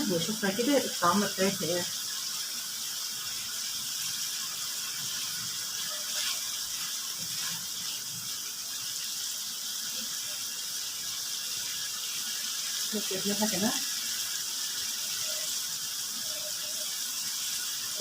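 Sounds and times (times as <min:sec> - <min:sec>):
liver sizzling in hot oil: 0:00.0 - 0:18.0.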